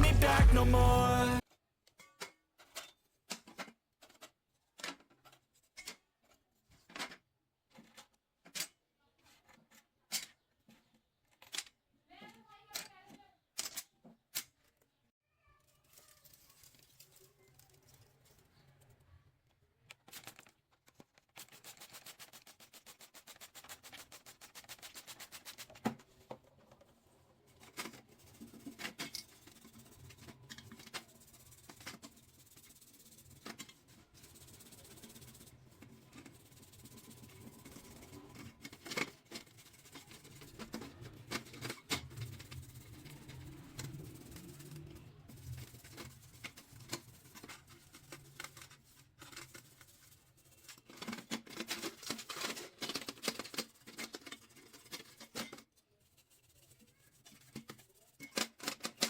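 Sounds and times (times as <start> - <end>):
rapid scraping on metal: 27.5 - 59.0.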